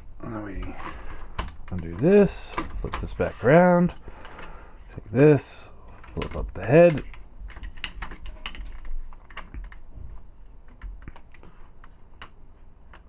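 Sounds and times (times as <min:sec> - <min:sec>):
plastic toy parts clicking: 0:06.0 - 0:09.8.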